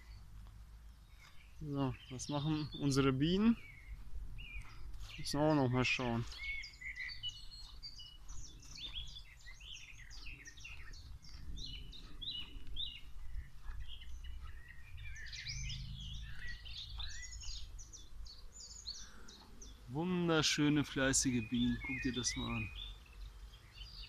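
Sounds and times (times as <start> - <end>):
songbirds singing and chirping: 0.0 - 24.0
low rumble: 11.0 - 18.6.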